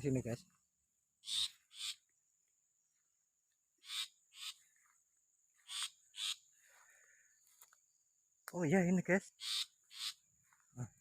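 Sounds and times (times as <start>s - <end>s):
bird giving harsh rasping calls: 1.2s - 2.0s, 3.8s - 4.6s, 5.6s - 6.5s, 9.3s - 10.3s.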